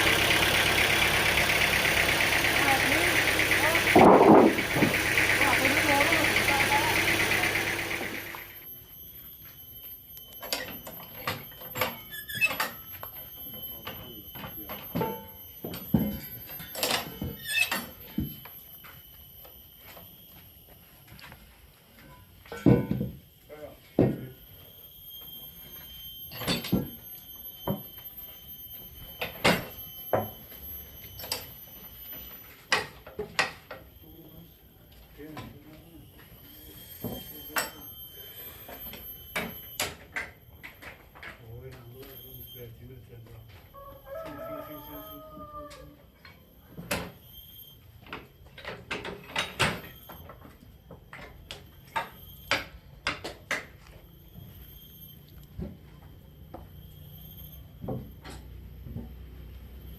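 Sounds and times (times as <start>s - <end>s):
faint high whine: 2.1s - 45.4s, 46.2s - 59.9s
short squeal: 10.0s - 13.8s, 16.2s - 18.1s, 43.8s - 48.0s, 54.1s - 58.8s.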